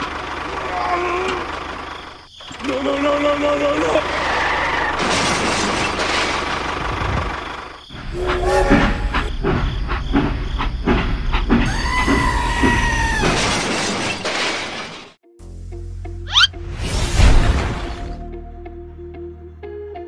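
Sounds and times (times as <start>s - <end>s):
two-note train whistle: 8.1s - 9.3s.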